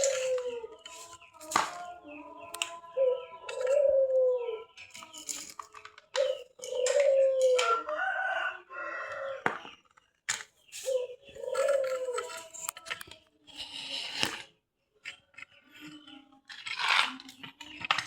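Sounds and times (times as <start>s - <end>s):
rooster crowing: 7.4s - 9.5s.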